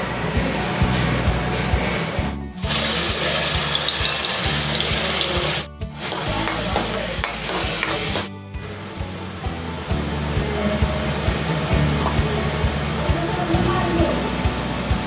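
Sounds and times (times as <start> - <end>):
background music: 0.0 - 15.0
metal spoon stirring in pan: 2.6 - 8.3
paste sizzling in hot oil: 2.6 - 8.3.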